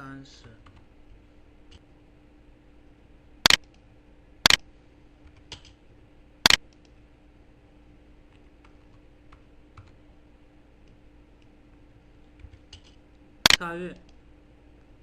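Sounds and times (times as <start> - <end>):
faint steady hum: 0.0 - 15.0
computer mouse clicks: 3.5 - 3.8, 6.5 - 7.0, 12.3 - 14.2.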